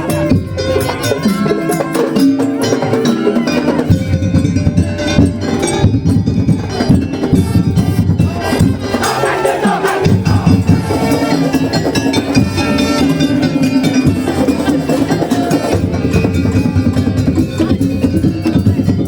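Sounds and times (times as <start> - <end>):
struck metal percussion: 0.0 - 19.0
held pitched melody line: 3.3 - 19.0
dense drumming: 3.9 - 19.0.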